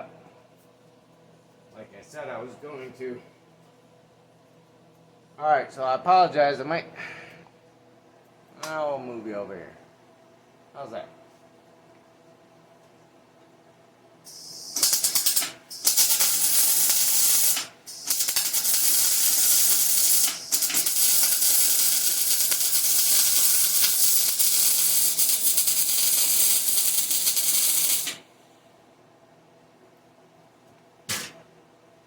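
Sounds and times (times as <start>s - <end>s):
welder arc crackling: 14.3s - 28.2s.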